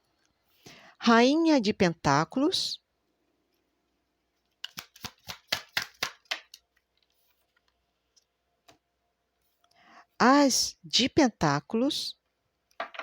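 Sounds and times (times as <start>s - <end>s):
cards being shuffled: 4.4s - 8.8s.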